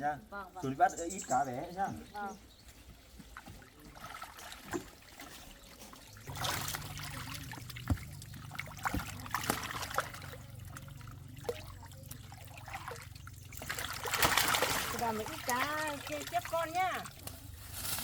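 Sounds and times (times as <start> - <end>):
water trickling and splashing: 0.4 - 18.0
low motor hum: 6.2 - 14.2.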